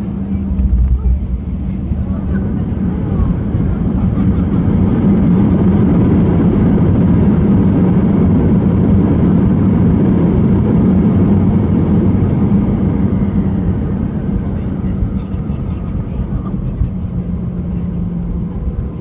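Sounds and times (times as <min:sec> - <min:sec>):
aircraft engine noise: 0:00.0 - 0:19.0.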